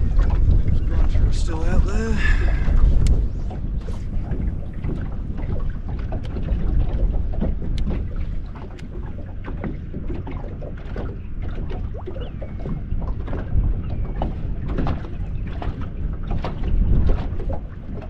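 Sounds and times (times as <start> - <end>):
water lapping against boat hull: 0.0 - 18.0
wind buffeting microphone: 0.0 - 18.0.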